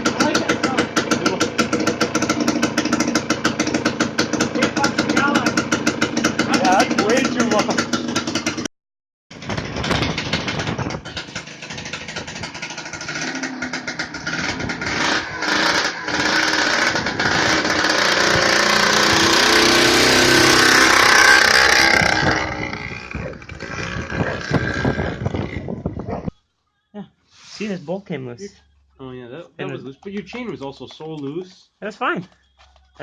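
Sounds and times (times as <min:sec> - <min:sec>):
loud two-stroke go-kart engine: 0:00.0 - 0:08.7, 0:09.3 - 0:25.7.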